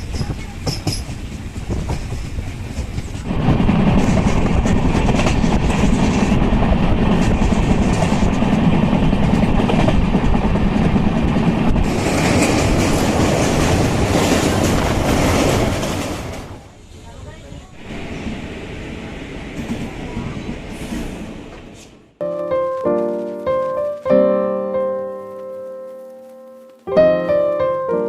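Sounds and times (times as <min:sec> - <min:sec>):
passenger train rumbling: 0:00.0 - 0:22.2
wheels clattering over rail joints: 0:11.8 - 0:16.7.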